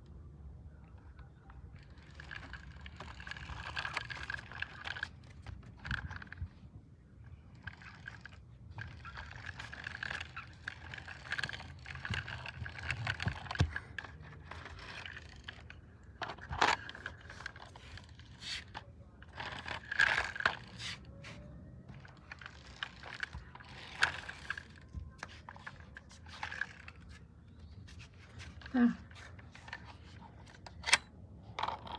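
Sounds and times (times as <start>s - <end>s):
objects scraping and clattering: 7.7s - 31.9s.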